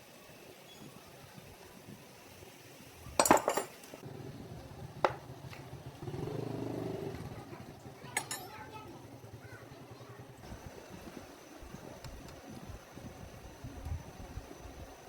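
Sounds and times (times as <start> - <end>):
metal tools clinking: 3.2 - 3.9, 8.1 - 8.7.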